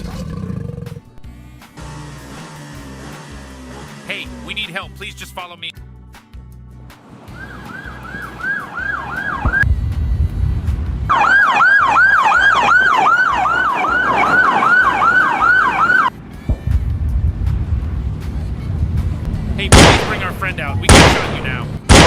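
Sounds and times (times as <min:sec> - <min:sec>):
police siren yelping: 0:07.3 - 0:09.6, 0:11.1 - 0:16.1
low rumble: 0:09.6 - 0:11.1, 0:16.5 - 0:21.2.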